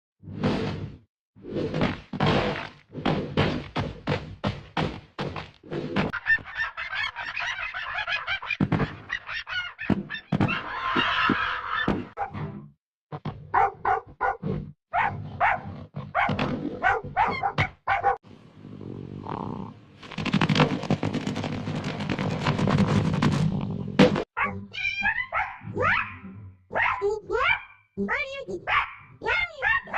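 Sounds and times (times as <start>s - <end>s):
knocks and thumps: 1.7s - 6.2s, 8.6s - 9.1s, 20.0s - 24.3s
animal cries: 24.4s - 26.2s.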